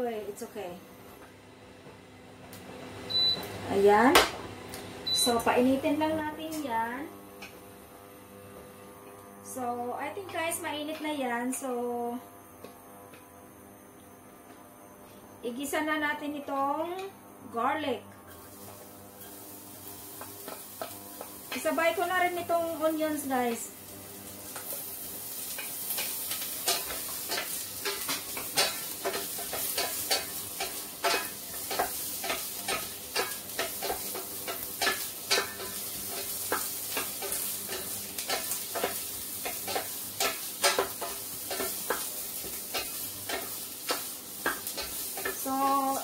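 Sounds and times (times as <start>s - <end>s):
onions sizzling in oil: 18.3s - 46.0s
spatula scraping a pan: 24.5s - 45.4s.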